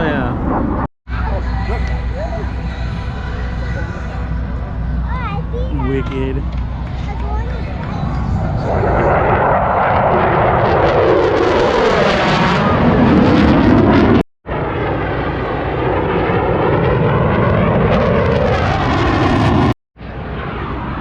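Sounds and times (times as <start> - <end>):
fighter jet flying past: 0.0 - 1.3, 6.4 - 21.0.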